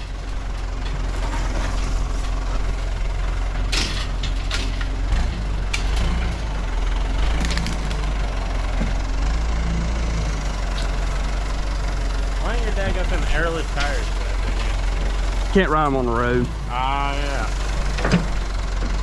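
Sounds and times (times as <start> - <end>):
equipment clanks and rattles: 0.0 - 2.8, 3.4 - 6.4, 17.7 - 19.0
diesel engine running: 0.0 - 19.0.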